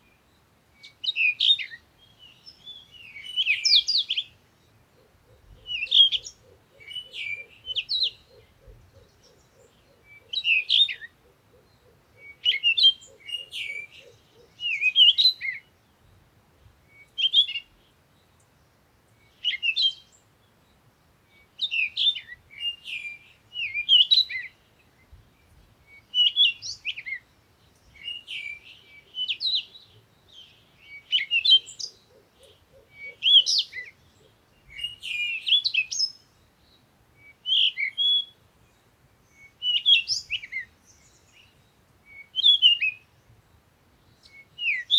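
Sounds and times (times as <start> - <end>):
songbird warbling: 0.8 - 15.7, 21.6 - 36.4, 37.2 - 43.1.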